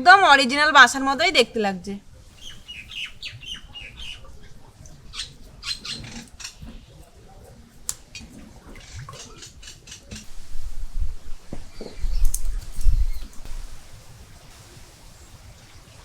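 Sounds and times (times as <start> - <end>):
small birds chirping: 2.3 - 7.2, 11.5 - 13.8
light sharp clicks: 12.2 - 13.5.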